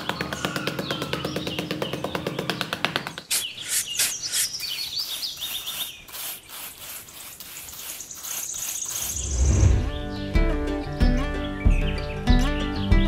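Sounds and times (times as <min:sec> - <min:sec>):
birds chirping: 0:00.0 - 0:06.5, 0:08.0 - 0:10.3
trowel scraping dry sand: 0:03.8 - 0:09.9
high bird trill: 0:07.9 - 0:10.2
loud low rumble: 0:09.2 - 0:10.2.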